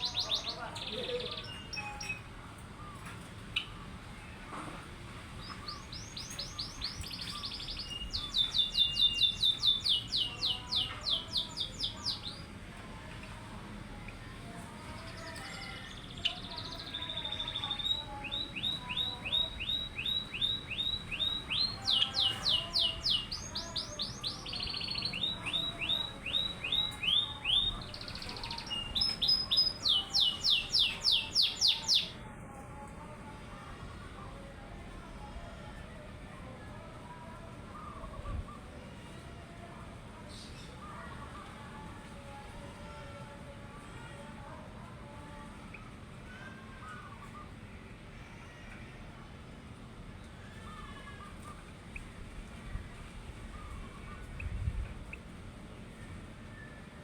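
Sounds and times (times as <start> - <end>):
songbird trilling: 0.0 - 2.2, 5.4 - 12.4, 15.2 - 32.2.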